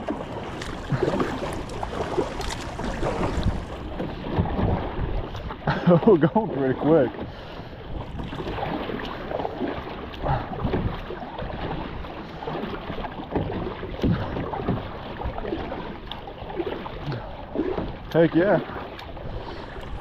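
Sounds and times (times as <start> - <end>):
river water rushing and splashing: 0.0 - 5.1.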